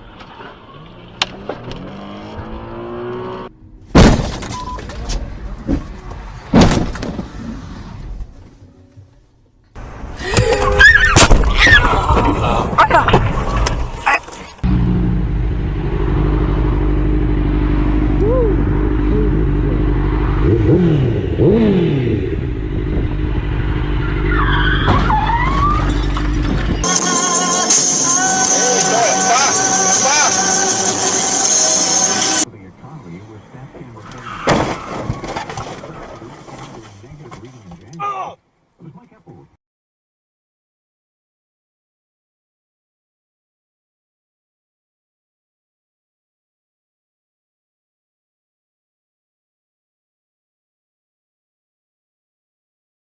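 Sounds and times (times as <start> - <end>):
car engine revving: 0.4 - 3.9, 14.6 - 24.8, 26.2 - 34.2
loud crashing impacts: 3.9 - 4.6
tyre squeal: 10.2 - 12.0, 24.0 - 32.4, 34.0 - 36.6.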